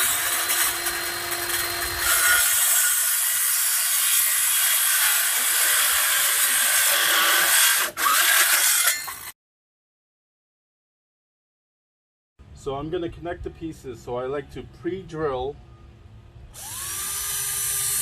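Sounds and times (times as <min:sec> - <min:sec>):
power saw cutting wood: 0:00.0 - 0:09.3, 0:16.6 - 0:18.0.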